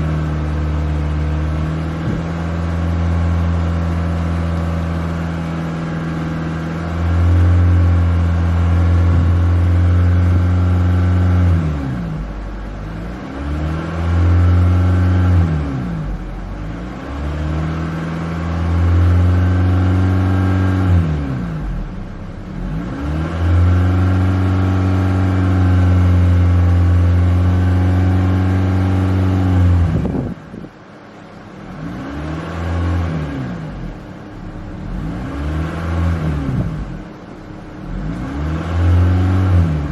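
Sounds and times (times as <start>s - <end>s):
car engine revving: 0.0s - 30.6s, 31.2s - 39.9s.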